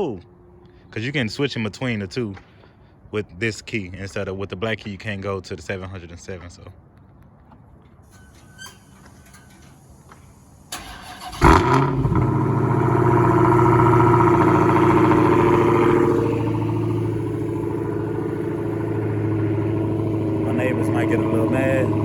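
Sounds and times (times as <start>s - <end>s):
car engine starting and idling: 8.1s - 22.0s
starter motor cranking: 8.2s - 22.0s.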